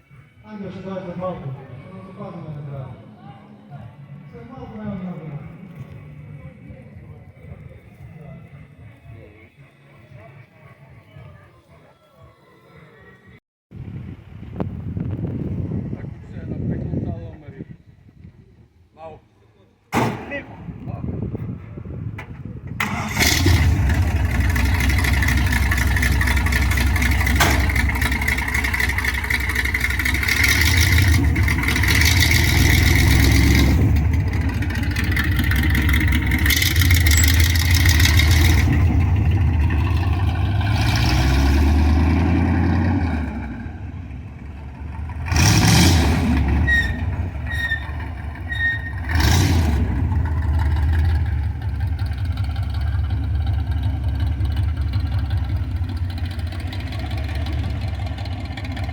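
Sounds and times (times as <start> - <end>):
car engine revving: 22.8 - 58.9.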